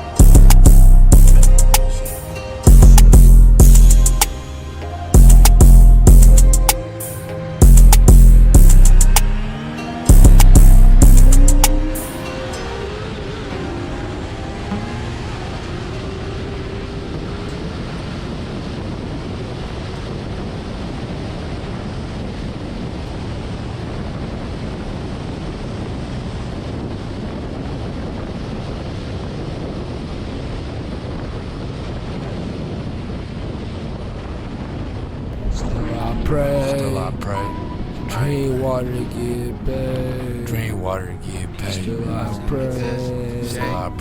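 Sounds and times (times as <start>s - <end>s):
wind rush over microphone: 14.4s - 38.5s.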